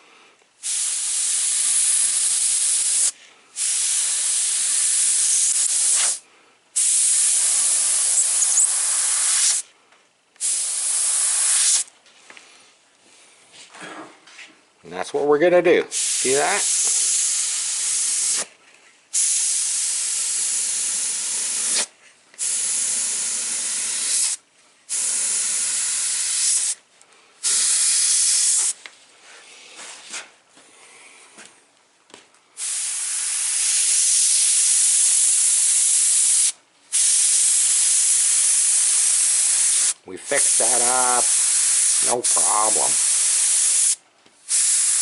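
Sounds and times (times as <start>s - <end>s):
airbrush spraying air hiss: 0.6s - 6.2s, 6.8s - 9.7s, 10.4s - 11.9s, 15.9s - 18.5s, 19.1s - 26.8s, 27.4s - 28.8s, 32.6s - 45.0s.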